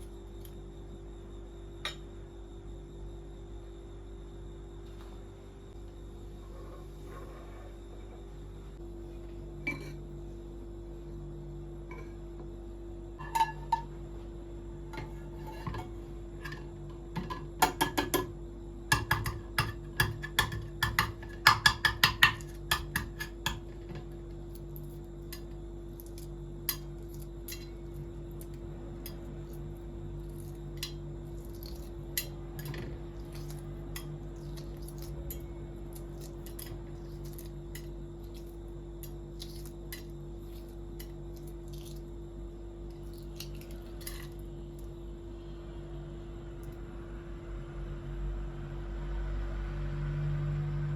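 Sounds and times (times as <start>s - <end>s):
steady low hum: 0.0s - 50.9s
dishes and glassware clinking: 9.6s - 10.0s, 13.2s - 13.9s.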